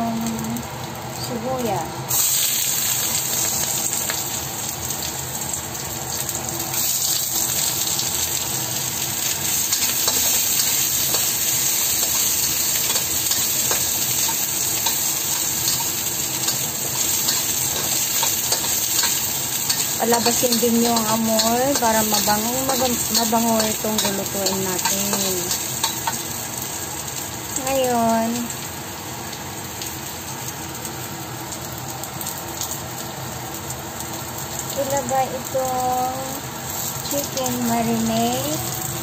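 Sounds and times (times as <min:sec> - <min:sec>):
onions sizzling in hot oil: 0:00.0 - 0:39.0
metal utensil scraping wok: 0:09.2 - 0:26.4.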